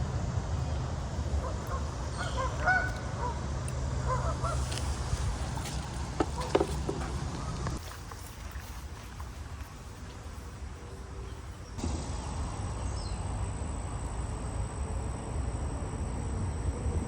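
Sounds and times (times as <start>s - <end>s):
low steady rumble: 0.0s - 17.0s
geese honking: 1.3s - 5.6s.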